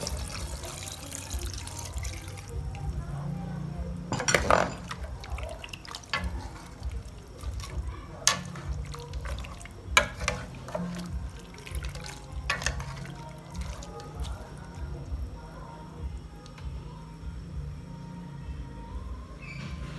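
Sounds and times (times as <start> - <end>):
water splashing and pouring: 0.0 - 15.6
background music: 0.0 - 19.9
utensils knocking dishes: 4.1 - 5.3.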